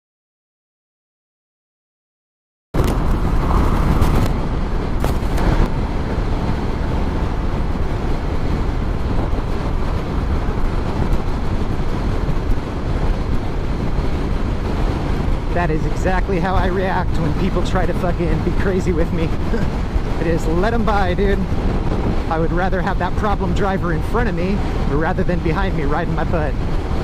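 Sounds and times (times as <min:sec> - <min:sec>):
motorcycle engine rumble: 0:02.8 - 0:27.0
wind and road noise: 0:02.8 - 0:27.0.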